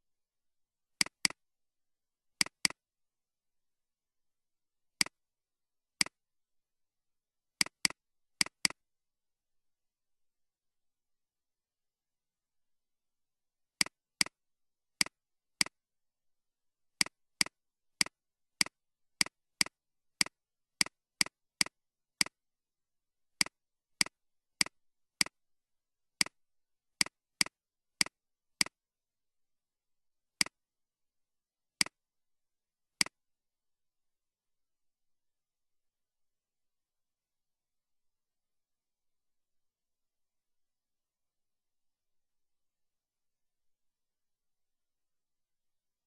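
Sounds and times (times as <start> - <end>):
computer mouse clicking: 1.0 - 1.4, 2.4 - 2.8, 7.6 - 8.8.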